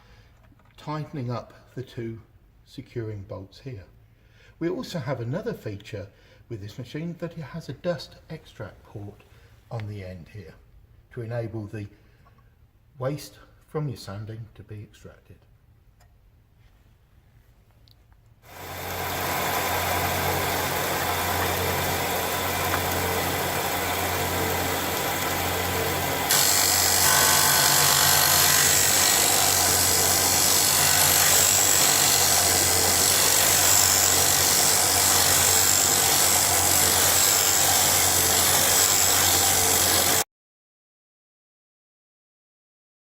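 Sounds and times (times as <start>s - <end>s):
sander motor humming: 18.5s - 40.2s.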